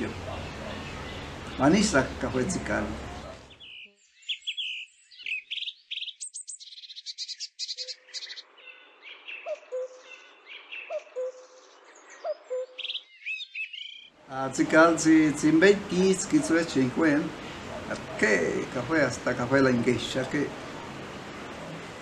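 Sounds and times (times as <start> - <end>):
birds chirping and trilling: 0.0 - 22.0
low hooting bird call: 3.0 - 14.1.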